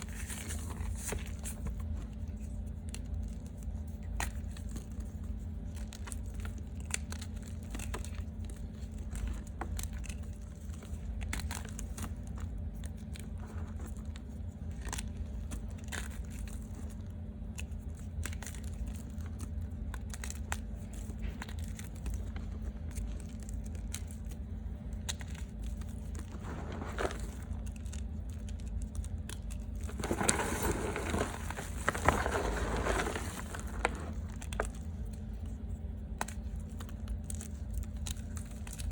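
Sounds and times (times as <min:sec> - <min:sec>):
steady low hum: 0:00.0 - 0:38.9
chalk crunching: 0:26.2 - 0:27.7, 0:29.8 - 0:34.8.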